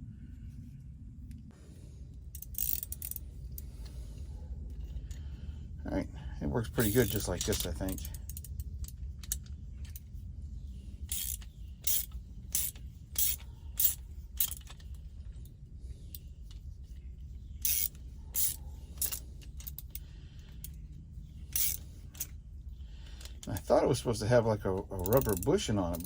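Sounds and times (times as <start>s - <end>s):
socket ratchet wrench clicking: 2.4s - 3.7s, 11.1s - 14.9s, 17.6s - 20.8s, 21.5s - 22.3s.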